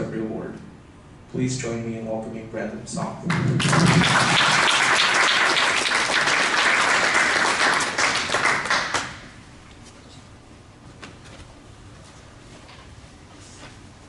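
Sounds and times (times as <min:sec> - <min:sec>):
audience applauding: 0:03.3 - 0:09.4.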